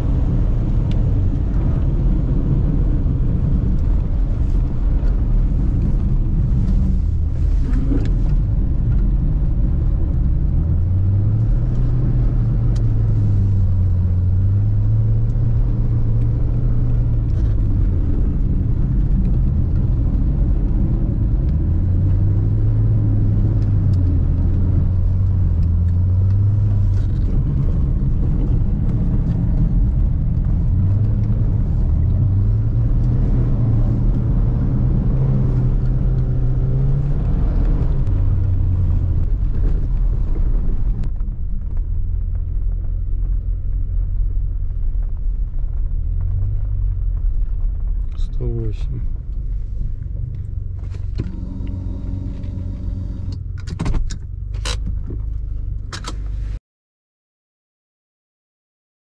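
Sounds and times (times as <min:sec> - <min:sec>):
low road rumble: 0:00.0 - 0:56.6
turbocharged engine revving: 0:50.7 - 0:53.4.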